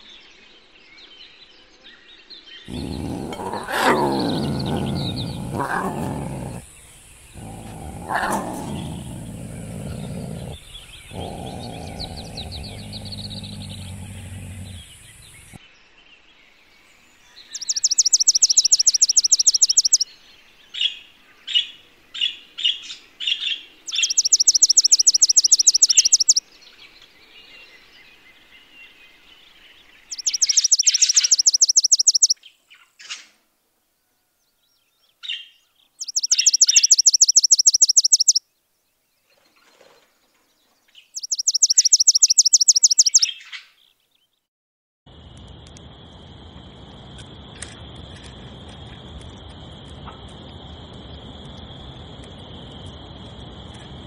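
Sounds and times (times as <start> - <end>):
bird chirps: 2.5 - 15.6, 17.3 - 20.2, 20.8 - 26.8, 27.5 - 33.2, 34.6 - 38.5, 40.9 - 44.4
songbird trilling: 2.7 - 15.6, 17.5 - 20.1, 22.7 - 26.4, 30.0 - 32.4, 35.3 - 38.4, 41.0 - 43.7.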